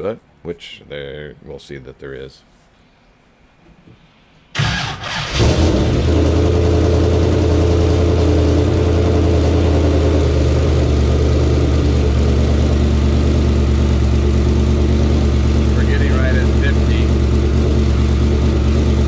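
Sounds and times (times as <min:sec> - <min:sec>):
engine cranking: 0:04.6 - 0:06.0
engine idling: 0:04.6 - 0:19.0.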